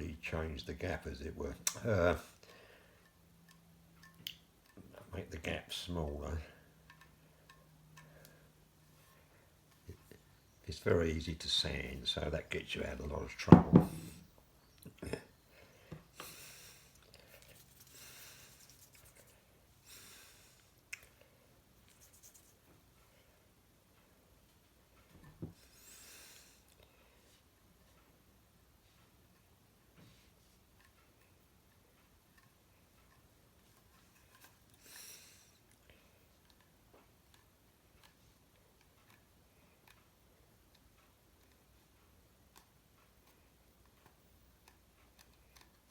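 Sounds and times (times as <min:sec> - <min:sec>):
soft hiss: 0:00.0 - 0:45.9
soft scraping strokes: 0:17.2 - 0:19.5.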